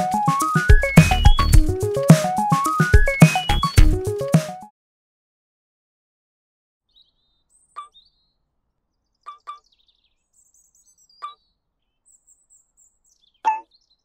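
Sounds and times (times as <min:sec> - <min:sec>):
birds chirping and trilling: 0:00.2 - 0:01.6, 0:02.9 - 0:03.9, 0:06.9 - 0:14.0
short sharp bird calls: 0:06.9 - 0:08.4, 0:09.2 - 0:12.6, 0:13.3 - 0:14.0.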